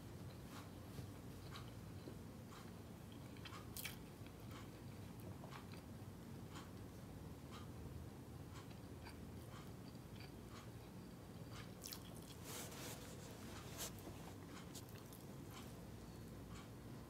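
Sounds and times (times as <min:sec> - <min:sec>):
low steady hum: 0:00.0 - 0:17.0
wet chewing: 0:11.8 - 0:12.4.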